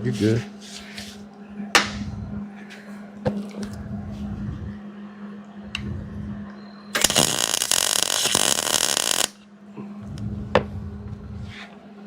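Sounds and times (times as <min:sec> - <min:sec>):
low hum: 0:01.3 - 0:12.0
welding arc crackling: 0:07.0 - 0:09.4.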